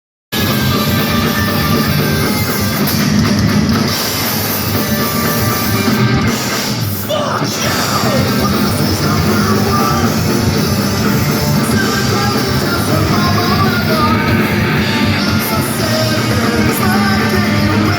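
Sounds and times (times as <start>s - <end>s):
distorted electric guitars: 0.3s - 17.9s
pounding drums: 0.3s - 17.9s
person singing: 7.1s - 17.9s.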